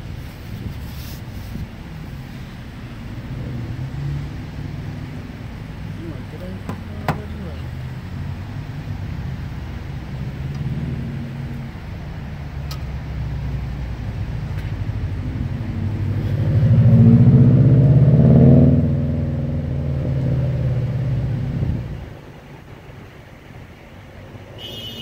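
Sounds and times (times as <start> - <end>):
vehicle engine running: 0.0 - 18.1.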